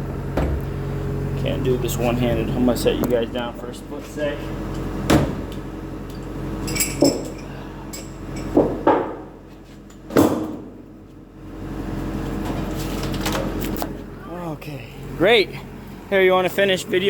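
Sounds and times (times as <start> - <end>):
excavator engine idling: 0.0 - 9.6, 10.6 - 17.0
sharp metal clanks: 6.6 - 9.2.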